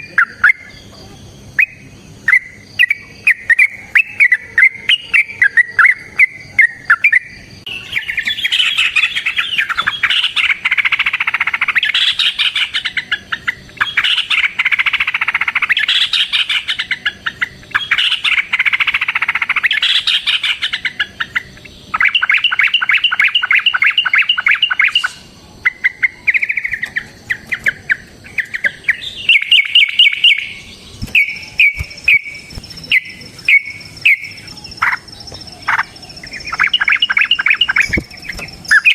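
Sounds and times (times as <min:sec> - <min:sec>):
bulbul singing chattering phrases: 0:00.0 - 0:38.9.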